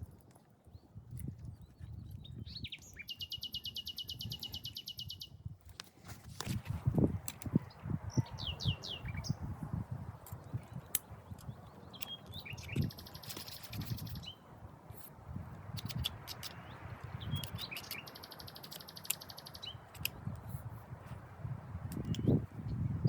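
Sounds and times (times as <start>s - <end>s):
small birds chirping: 0.1s - 5.5s, 6.9s - 23.0s
high bird trills: 11.9s - 14.4s, 15.8s - 19.8s
sharp clicks: 15.7s - 20.5s.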